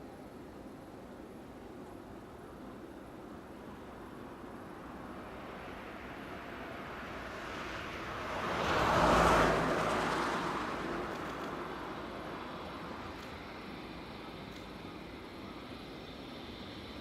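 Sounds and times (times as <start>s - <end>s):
vehicle passing by: 6.4s - 12.8s.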